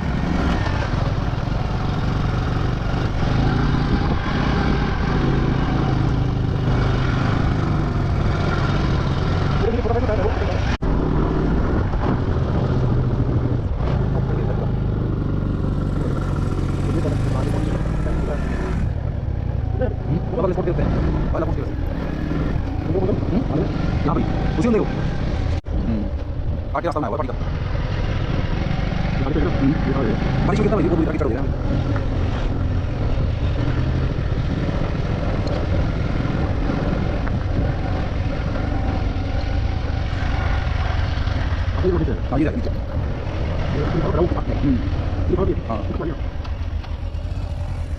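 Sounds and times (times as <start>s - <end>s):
motorcycle engine droning: 0.0s - 47.9s
wind noise on microphone: 2.0s - 9.0s.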